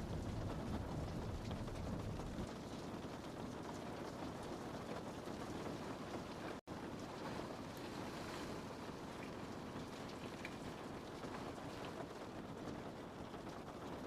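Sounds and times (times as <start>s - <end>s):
low rumble: 0.0s - 2.5s
rain on a window: 0.0s - 14.0s.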